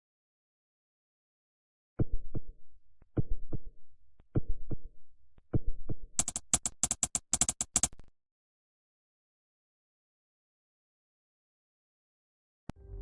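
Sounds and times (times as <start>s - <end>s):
electronic drum beat: 6.2s - 8.0s.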